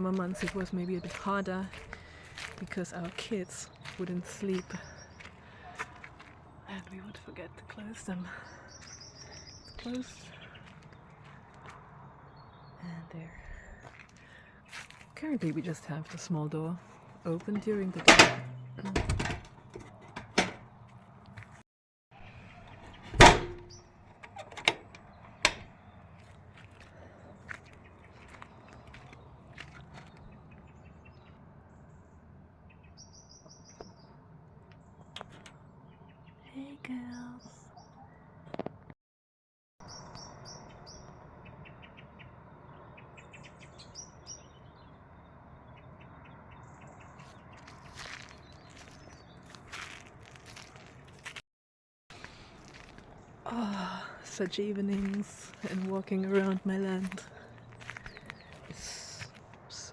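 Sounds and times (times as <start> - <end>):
small birds chirping: 0.0 - 21.6, 22.2 - 38.9, 39.8 - 51.4, 52.1 - 59.9
door banging shut: 17.4 - 20.7, 22.6 - 24.9.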